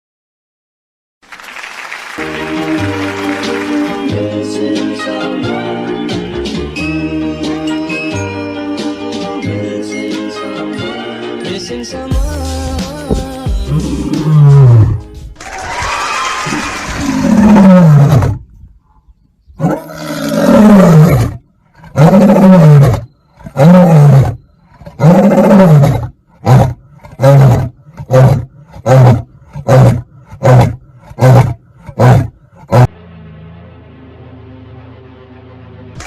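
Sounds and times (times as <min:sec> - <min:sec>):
big cat roaring: 0:13.7 - 0:15.1, 0:16.9 - 0:18.5, 0:19.6 - 0:32.9
short grunting roars: 0:19.6 - 0:32.9.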